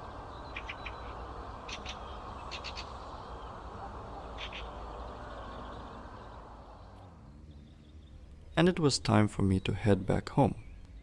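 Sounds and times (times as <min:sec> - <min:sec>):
low rushing background: 0:00.0 - 0:09.8
short sharp bird calls: 0:00.1 - 0:06.3.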